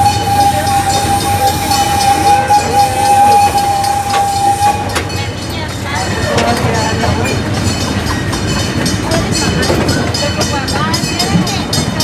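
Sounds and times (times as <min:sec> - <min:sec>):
high-pitched steady tone: 0:00.0 - 0:06.4
miniature train rumbling: 0:00.0 - 0:12.0.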